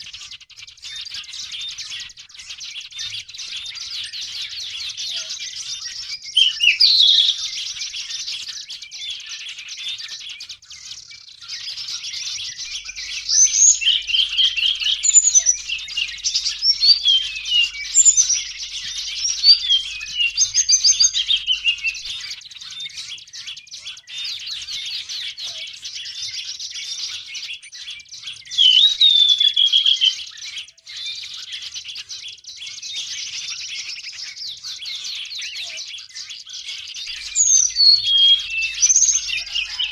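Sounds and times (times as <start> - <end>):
small birds chattering: 0.0 - 39.9
bird whistled notes: 3.0 - 8.1, 10.8 - 25.6, 28.4 - 30.3, 36.9 - 39.9.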